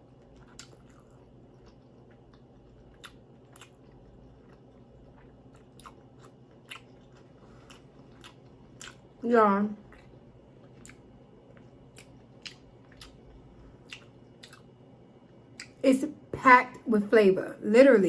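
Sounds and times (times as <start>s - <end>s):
person chewing food: 0.0s - 9.2s, 9.8s - 14.8s, 15.5s - 15.8s
wet mouth clicks and smacks: 13.9s - 14.7s.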